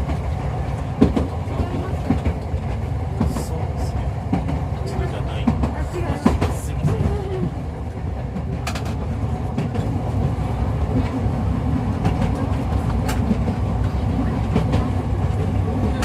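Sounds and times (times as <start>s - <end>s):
streetcar wheels rumbling: 0.0s - 16.0s.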